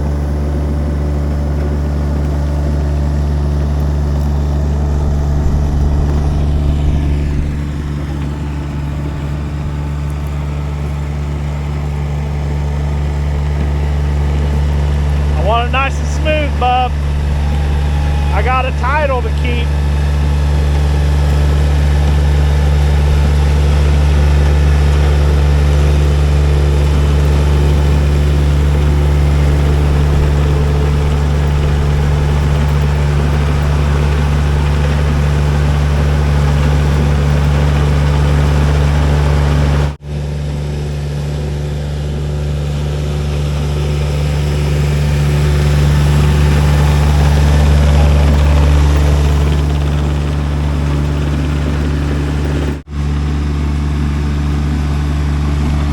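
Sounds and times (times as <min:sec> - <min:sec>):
skid steer engine running: 0:00.0 - 0:55.9.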